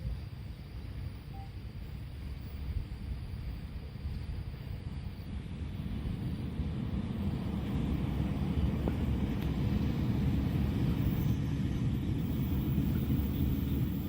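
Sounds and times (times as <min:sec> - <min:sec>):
low vehicle rumble: 0:05.1 - 0:14.0.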